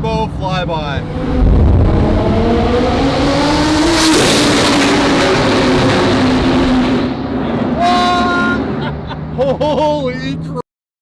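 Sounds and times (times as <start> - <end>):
sports car engine flyby in tunnel: 0.9 - 9.4.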